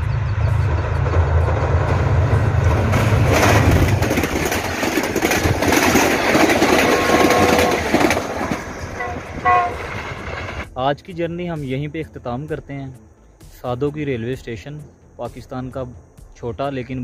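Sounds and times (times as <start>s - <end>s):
diesel locomotive engine drone: 0.0s - 10.8s
train wheels rumbling and rattling: 0.0s - 10.8s.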